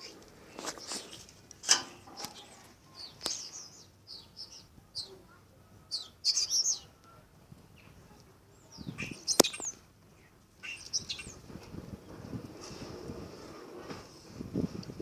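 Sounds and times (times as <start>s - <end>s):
small birds chirping: 0.0s - 11.5s.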